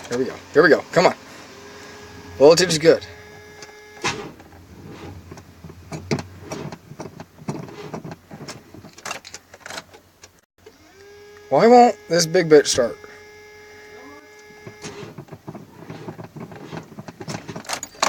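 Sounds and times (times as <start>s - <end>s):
truck engine cranking: 0.0s - 18.0s
low steady hum: 0.3s - 8.9s.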